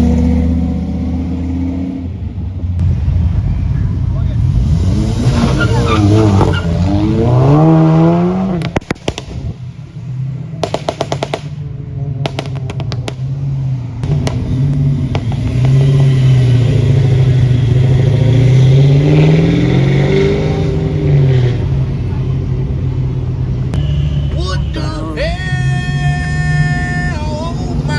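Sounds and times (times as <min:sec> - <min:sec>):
car engine revving: 0:00.0 - 0:27.9
exhaust crackling and popping: 0:02.8 - 0:18.6.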